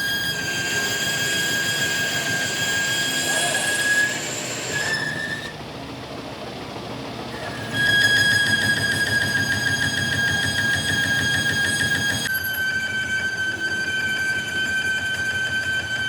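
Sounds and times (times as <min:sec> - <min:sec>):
metal-on-metal machining squeal: 0:00.0 - 0:05.6, 0:07.4 - 0:16.0.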